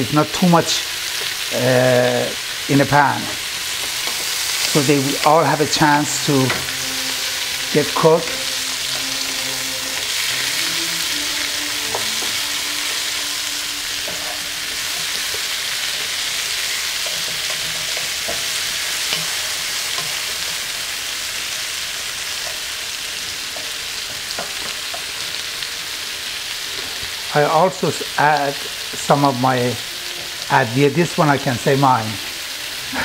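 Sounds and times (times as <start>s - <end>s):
zucchini sizzling in a pan: 0.0s - 33.0s
wooden spoon scraping a pan: 3.3s - 27.2s.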